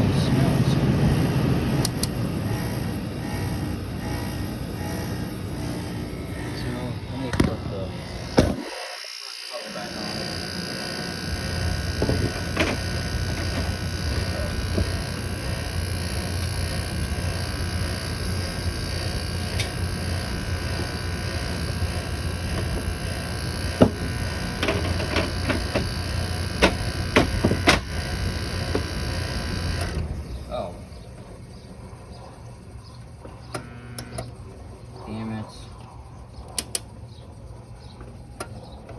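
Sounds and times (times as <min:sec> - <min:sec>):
compressor low hum: 0:00.0 - 0:08.9, 0:09.5 - 0:38.9
sharp clicks and ticks: 0:01.8 - 0:05.8, 0:35.8 - 0:36.9.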